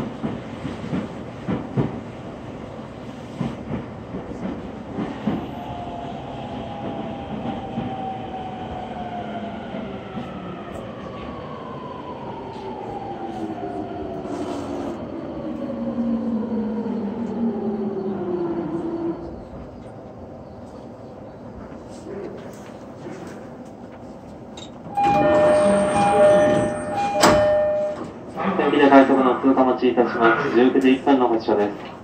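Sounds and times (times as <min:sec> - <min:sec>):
rail and wheel rumble: 0:00.0 - 0:32.0.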